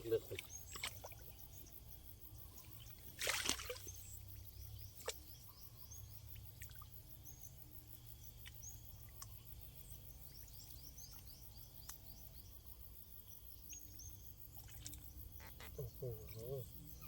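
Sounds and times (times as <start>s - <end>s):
water splash: 3.2s - 3.9s
high bird chirps: 15.4s - 16.6s.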